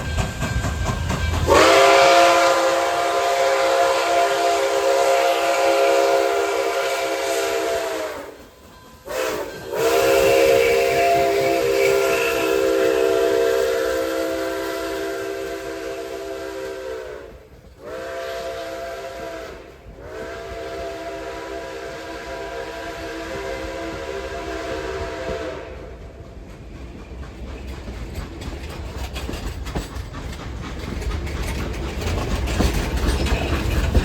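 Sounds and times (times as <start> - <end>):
steam locomotive chime whistle: 0.0 - 26.3
steam hissing: 0.0 - 34.0.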